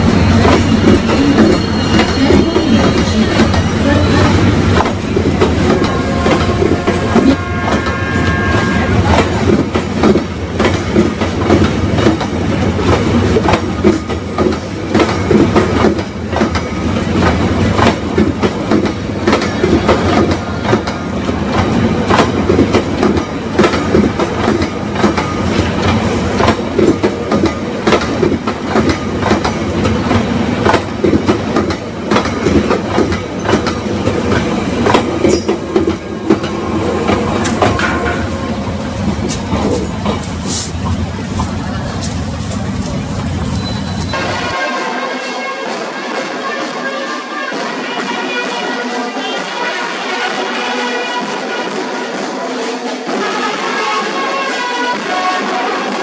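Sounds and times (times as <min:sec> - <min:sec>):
train wheels clacking over rail joints: 0:00.0 - 0:44.6
train rumble: 0:00.0 - 0:56.0
wheel squeals: 0:00.3 - 0:04.4, 0:43.5 - 0:44.2.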